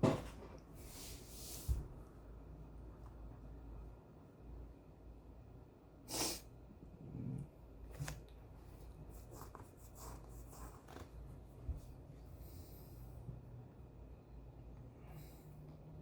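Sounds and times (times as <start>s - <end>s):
pen and paper scratching: 9.1s - 11.2s.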